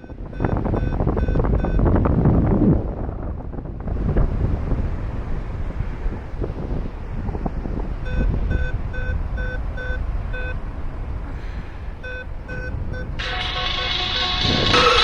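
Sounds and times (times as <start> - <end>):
variometer beeping: 0.0 - 2.0, 8.0 - 10.6, 12.0 - 15.0
wind rushing on microphone: 0.0 - 15.0
music: 13.2 - 15.0.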